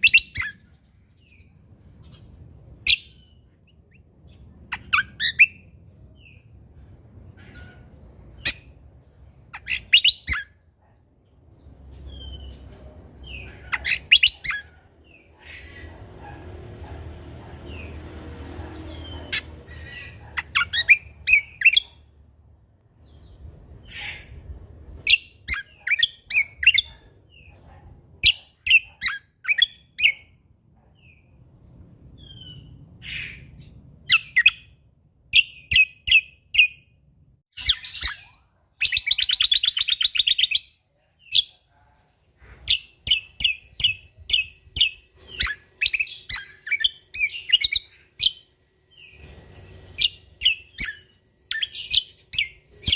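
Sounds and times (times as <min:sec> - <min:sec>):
songbird singing chirps and whistles: 0:00.0 - 0:06.5, 0:09.5 - 0:10.6
buzzy rattling bird trill: 0:42.8 - 0:52.9.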